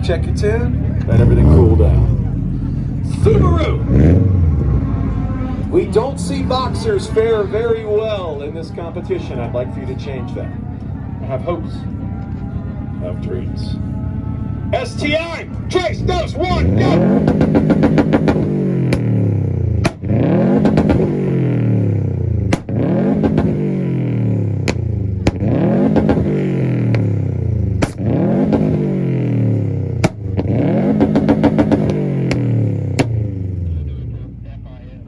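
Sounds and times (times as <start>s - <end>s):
car engine revving on limiter: 0.0s - 8.5s, 15.7s - 33.9s
exhaust pops and bangs: 16.2s - 21.4s, 22.4s - 23.8s, 24.6s - 33.5s.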